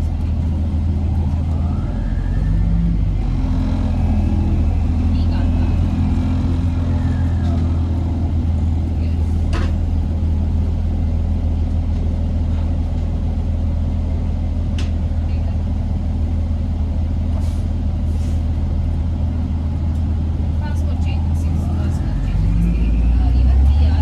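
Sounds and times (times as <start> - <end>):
bus engine drone: 0.0 - 24.0.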